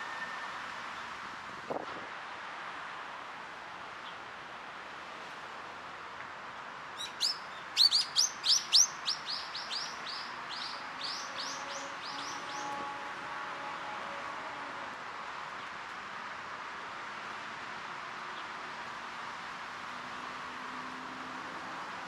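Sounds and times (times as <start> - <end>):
steady background hiss: 0.0 - 20.7
small bird calling: 7.0 - 12.8.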